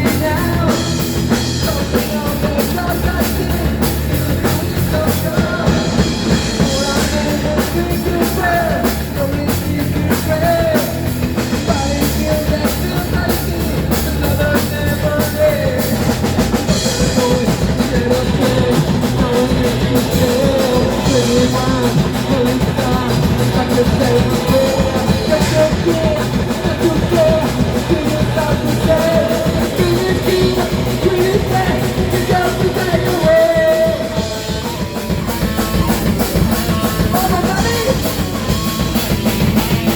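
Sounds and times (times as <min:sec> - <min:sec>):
drum kit beat: 0:00.0 - 0:39.9
guitar: 0:00.0 - 0:39.9.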